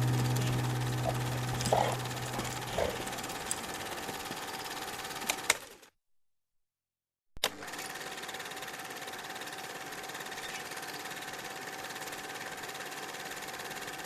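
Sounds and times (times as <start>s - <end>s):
steady hum: 0.0s - 4.1s.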